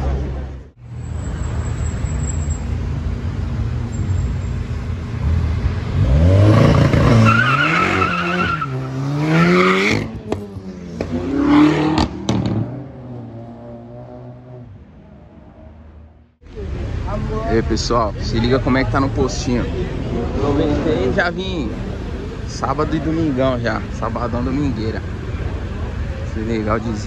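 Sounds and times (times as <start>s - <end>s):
car engine revving: 4.7s - 16.0s.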